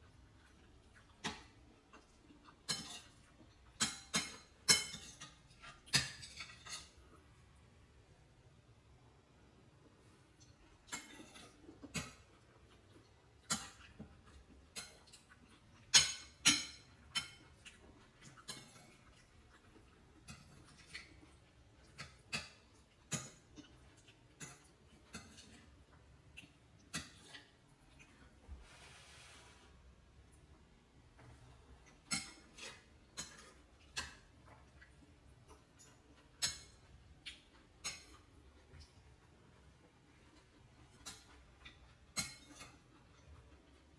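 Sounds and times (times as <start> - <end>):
kitchen utensils clinking: 3.8 - 7.0.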